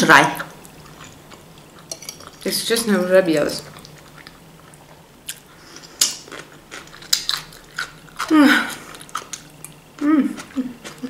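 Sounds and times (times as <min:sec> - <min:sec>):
person chewing crunchy food: 0:03.7 - 0:11.0
person humming briefly: 0:10.0 - 0:10.8.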